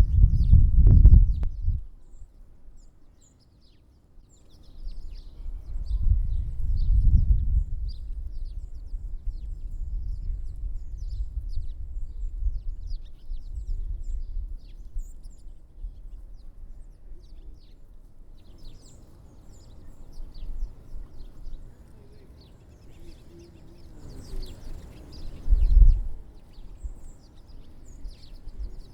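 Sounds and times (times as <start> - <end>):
low rumble: 0.0 - 1.9
small songbirds chirping: 0.0 - 28.9.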